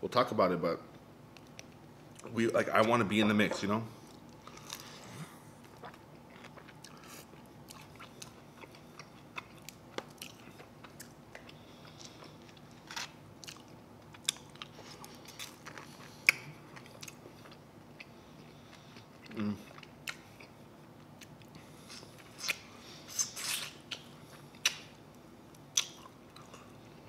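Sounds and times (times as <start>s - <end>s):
person chewing: 3.5s - 20.6s, 21.2s - 25.0s, 25.6s - 27.0s.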